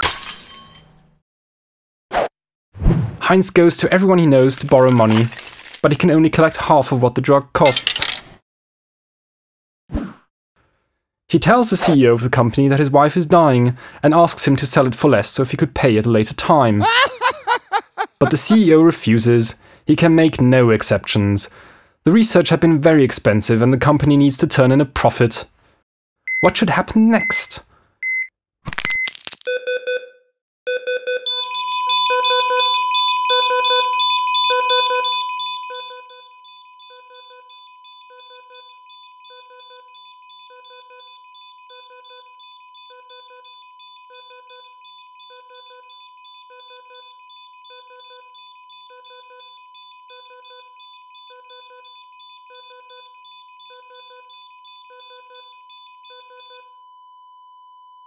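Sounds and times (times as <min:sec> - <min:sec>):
short electronic beeps: 0:27.2 - 0:28.3, 0:28.9 - 0:36.9.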